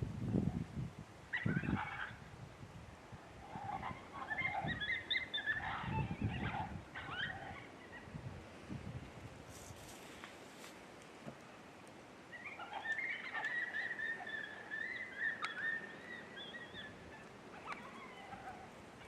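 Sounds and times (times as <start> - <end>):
wind buffeting microphone: 0.0 - 9.8
coyote yips and squeals: 1.3 - 2.2, 3.4 - 8.2, 12.3 - 18.7.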